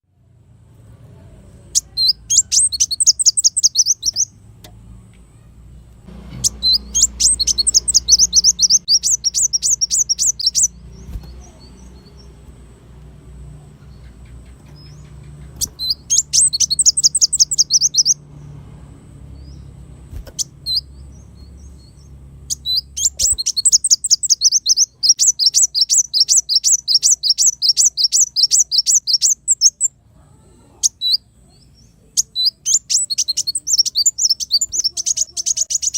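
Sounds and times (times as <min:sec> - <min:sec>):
bird singing rapid high notes: 0:01.7 - 0:04.4, 0:06.1 - 0:18.6, 0:19.2 - 0:30.0, 0:30.8 - 0:35.9.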